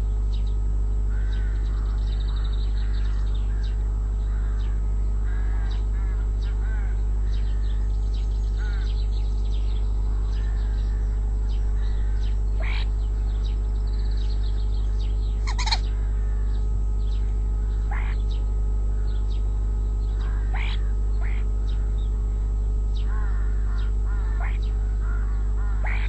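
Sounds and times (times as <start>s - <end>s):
steady low hum: 0.0s - 26.0s
loud short bird calls: 1.1s - 19.4s, 20.0s - 22.1s, 23.0s - 26.0s
birds chirping and whistling: 7.3s - 18.5s, 19.1s - 22.2s, 23.0s - 26.0s.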